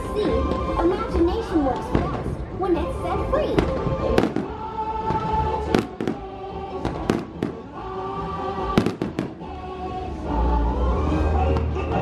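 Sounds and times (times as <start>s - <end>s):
theme-park music: 0.0s - 12.0s
fireworks bursting: 3.6s - 7.8s, 8.6s - 9.6s.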